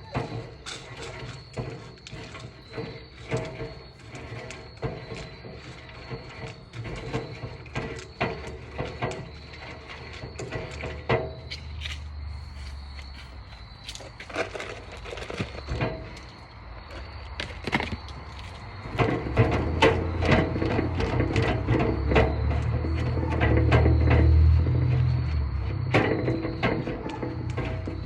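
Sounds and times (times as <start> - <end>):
knocks and scrapes of stirring: 0.0 - 12.7, 18.5 - 28.0.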